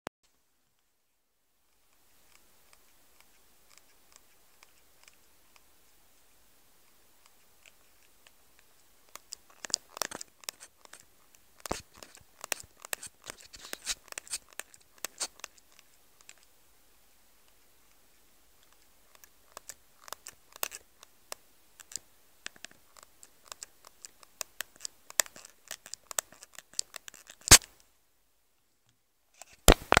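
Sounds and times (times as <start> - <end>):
phone crackling and clicking: 9.1 - 11.0, 21.8 - 27.8, 29.4 - 30.0
sharp loud click: 27.5 - 27.7.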